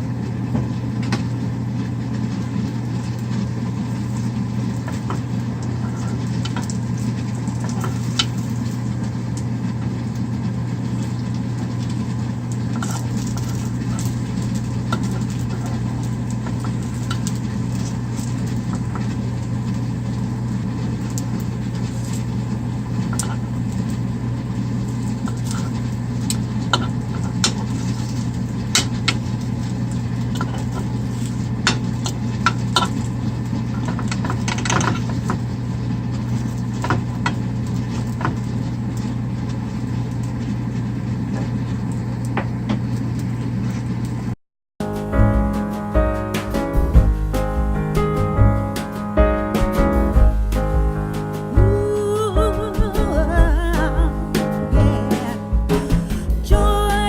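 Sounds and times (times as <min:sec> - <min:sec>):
steady low hum: 0:44.8 - 0:57.0.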